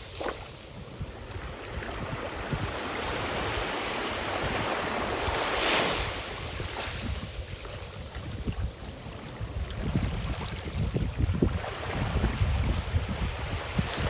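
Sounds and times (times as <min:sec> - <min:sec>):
ocean waves breaking on beach: 0:00.0 - 0:14.0
wind buffeting microphone: 0:00.0 - 0:14.0.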